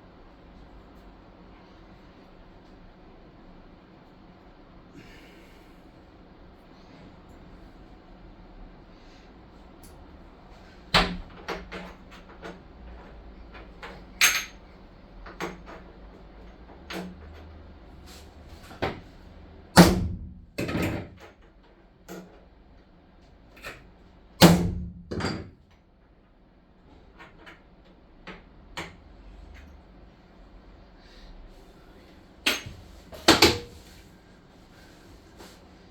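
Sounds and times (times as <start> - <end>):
knocks and clanks on metal: 24.4 - 25.6, 32.5 - 33.9.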